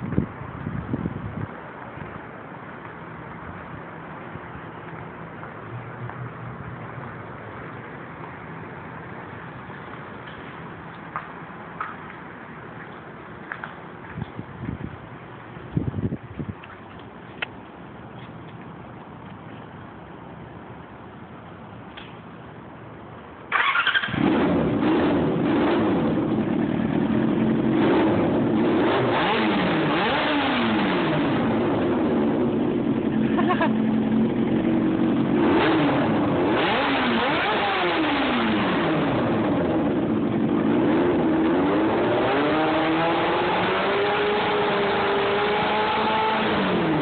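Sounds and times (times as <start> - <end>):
motorcycle engine revving: 23.5 - 47.0.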